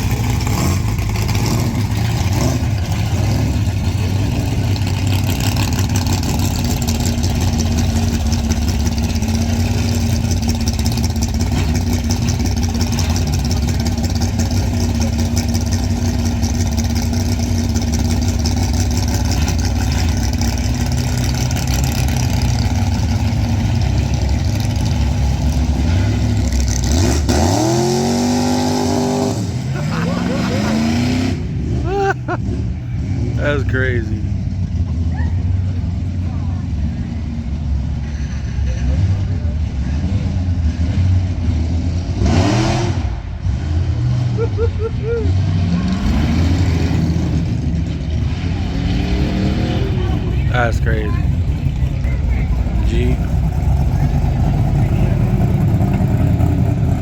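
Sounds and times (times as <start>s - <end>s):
car engine rumbling: 0.0s - 57.0s
engine revving up: 24.6s - 33.8s, 38.9s - 57.0s.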